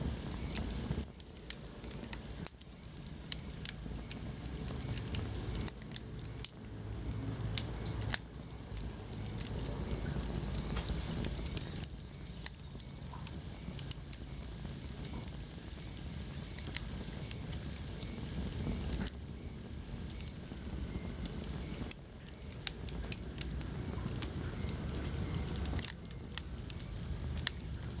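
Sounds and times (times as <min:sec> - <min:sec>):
low rumble of flames: 0:00.0 - 0:28.0
wood fire crackling and popping: 0:00.0 - 0:28.0.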